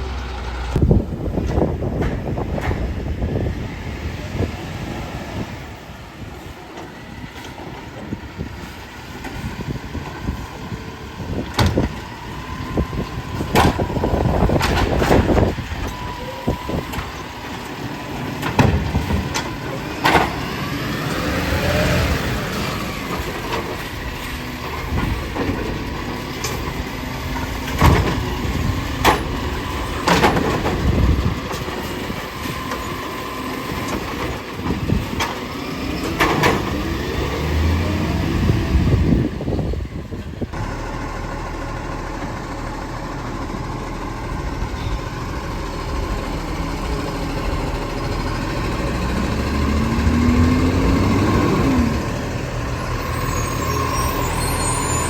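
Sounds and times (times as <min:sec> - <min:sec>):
garbage truck running: 0:00.0 - 0:55.0
rising and falling whine: 0:44.1 - 0:55.0.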